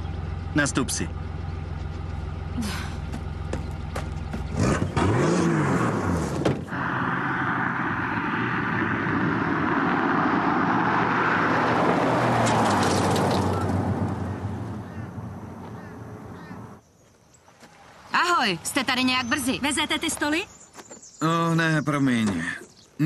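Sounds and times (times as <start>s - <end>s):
driving noise: 0.0s - 16.8s
car engine revving: 3.5s - 16.8s.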